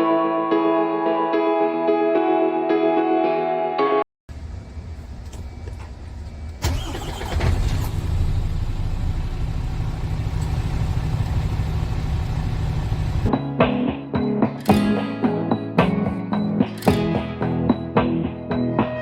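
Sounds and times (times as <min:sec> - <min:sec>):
diesel engine starting and idling: 0:04.3 - 0:13.3.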